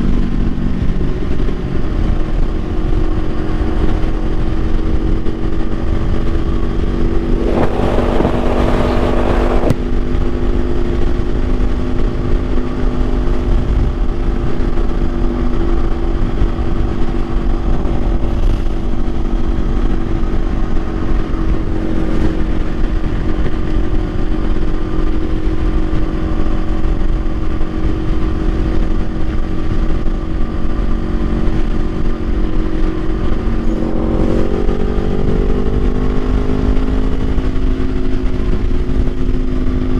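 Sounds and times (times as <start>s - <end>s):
motorcycle engine running: 0.0s - 39.9s
wind noise on microphone: 0.0s - 39.9s
loud rushing hiss: 7.2s - 9.8s.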